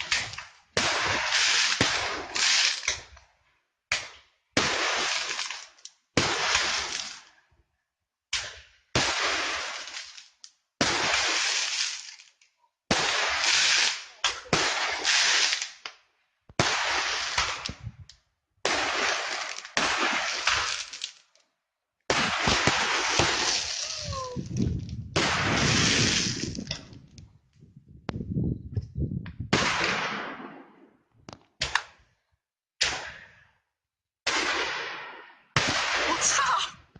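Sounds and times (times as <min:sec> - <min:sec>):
fireworks crackling hiss: 0:11.2 - 0:12.3, 0:13.2 - 0:15.8, 0:22.6 - 0:26.6
fireworks bangs: 0:12.9 - 0:15.8, 0:16.5 - 0:21.1, 0:22.1 - 0:27.0, 0:29.4 - 0:31.0.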